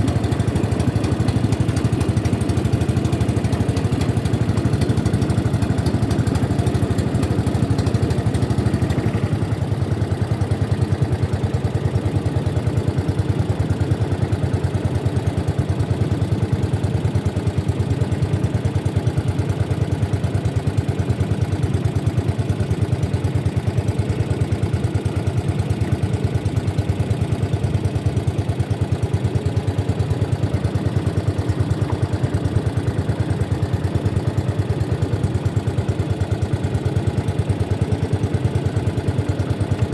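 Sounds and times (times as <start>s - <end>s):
boat engine running: 0.0s - 14.4s, 25.5s - 39.9s.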